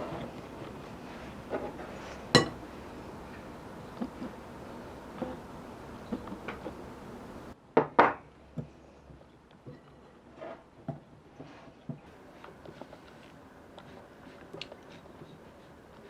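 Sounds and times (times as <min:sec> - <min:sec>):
utensils knocking against bowl: 0:02.4 - 0:02.6.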